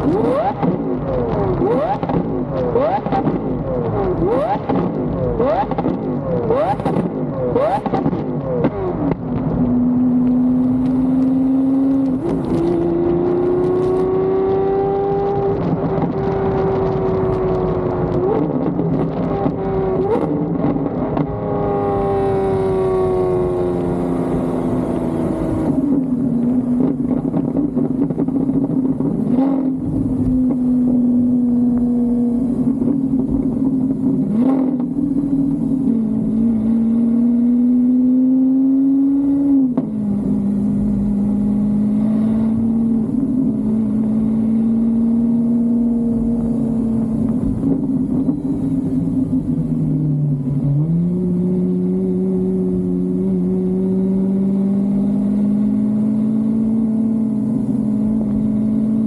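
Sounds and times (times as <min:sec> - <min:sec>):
car engine running while driving: 0:00.0 - 0:59.0.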